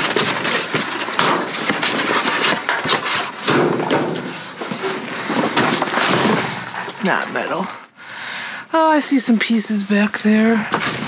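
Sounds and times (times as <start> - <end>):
knocks and clatters of items: 0.0 - 7.8, 10.4 - 11.0
rustling and scraping of debris: 0.0 - 7.9, 9.2 - 11.0.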